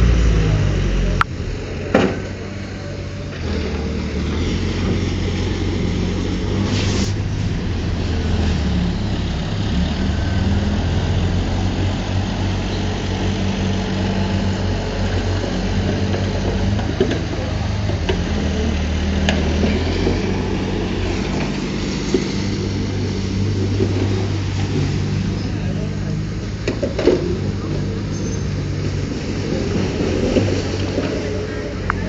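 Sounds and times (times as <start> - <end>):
heavy diesel engine running: 0.0 - 32.0
brief hiss: 6.6 - 7.2.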